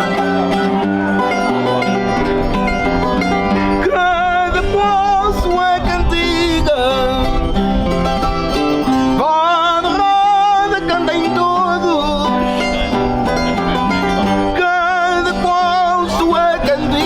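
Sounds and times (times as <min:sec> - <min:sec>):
accordion: 0:00.0 - 0:17.0
plucked string instruments: 0:00.0 - 0:17.0
folk singing with vibrato: 0:03.3 - 0:07.6, 0:09.1 - 0:17.0.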